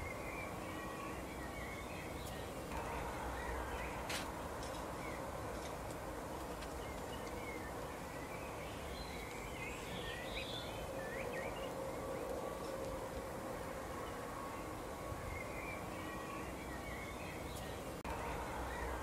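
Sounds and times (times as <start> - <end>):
background hiss: 0.0 - 19.0.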